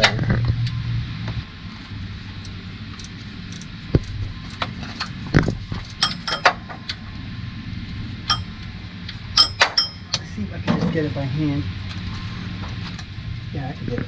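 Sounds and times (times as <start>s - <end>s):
low steady hum: 0.0s - 14.0s
metal tools clicking on engine parts: 2.4s - 6.7s, 8.3s - 8.5s, 9.4s - 10.3s
ringing metallic clinks: 5.9s - 6.5s, 8.3s - 8.5s, 9.4s - 10.2s.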